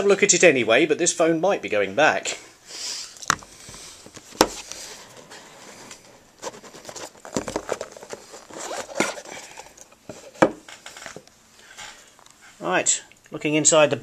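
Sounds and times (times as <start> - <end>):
cardboard packaging rustling: 3.2 - 11.3.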